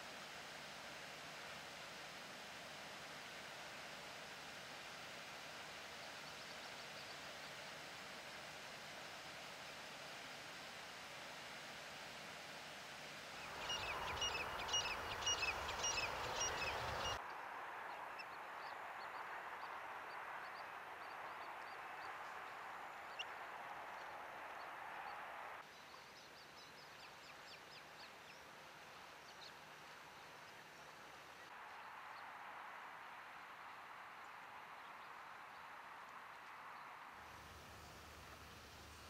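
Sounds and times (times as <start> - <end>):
steady outdoor hiss: 0.0 - 39.0
birds calling: 13.5 - 17.2.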